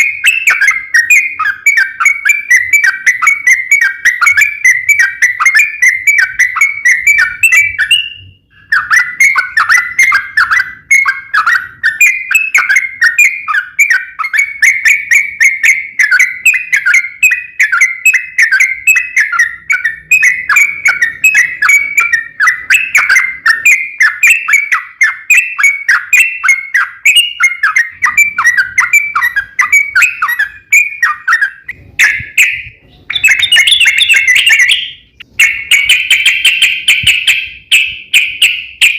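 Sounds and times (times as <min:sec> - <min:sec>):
bird singing chattering whistled notes: 0:00.0 - 0:38.9.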